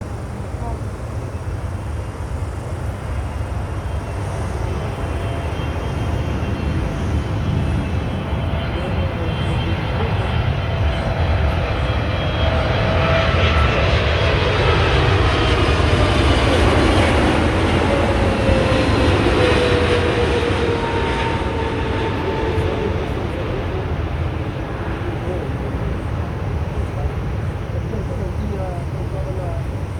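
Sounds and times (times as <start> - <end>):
jet engine roar in cabin: 0.0 - 29.9.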